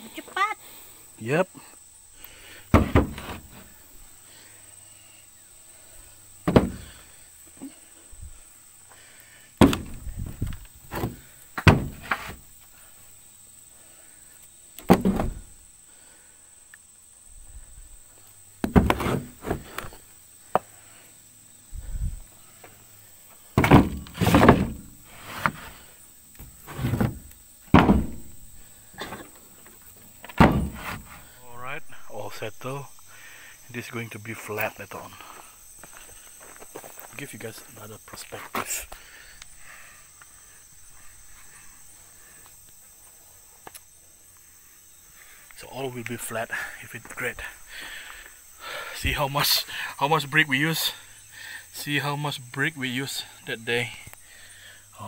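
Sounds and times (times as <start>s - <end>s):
bricks thudding and knocking: 2.7s - 3.6s, 6.5s - 6.9s, 9.6s - 12.4s, 14.9s - 15.5s, 18.6s - 19.9s, 23.6s - 25.6s, 26.4s - 28.5s, 30.3s - 31.2s.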